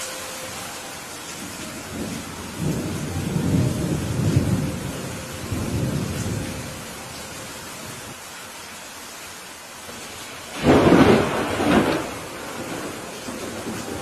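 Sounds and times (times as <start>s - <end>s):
thunder rumbling: 0.0s - 8.2s, 10.0s - 14.0s
heavy rain: 0.0s - 14.0s.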